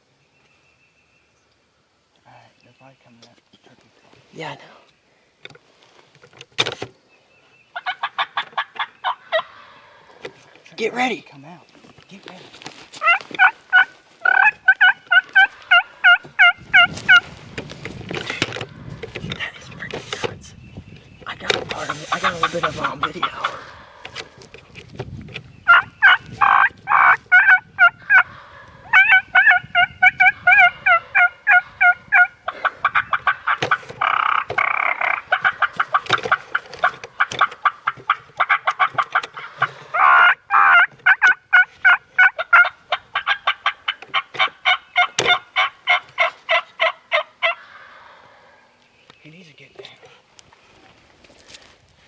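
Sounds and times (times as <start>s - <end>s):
turkey yelping and cutting: 7.8s - 9.8s, 13.0s - 17.2s, 21.7s - 24.4s, 25.7s - 48.5s.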